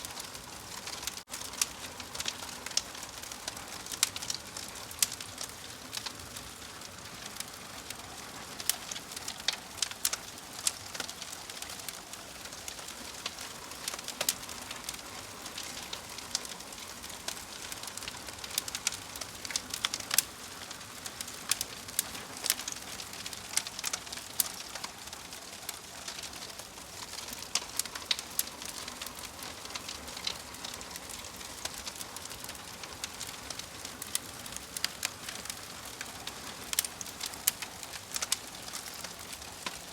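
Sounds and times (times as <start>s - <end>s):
soft steady hiss: 0.0s - 39.9s
wood fire crackling and popping: 0.0s - 39.9s.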